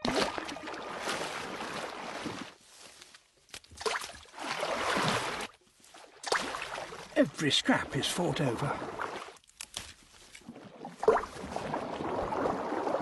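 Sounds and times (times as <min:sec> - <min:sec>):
fish splashing in water: 0:03.7 - 0:07.1.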